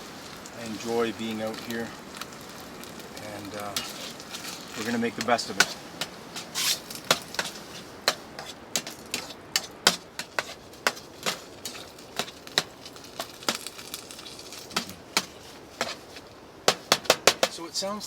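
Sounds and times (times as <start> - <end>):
icy snow pelting tent: 0.0 - 18.0.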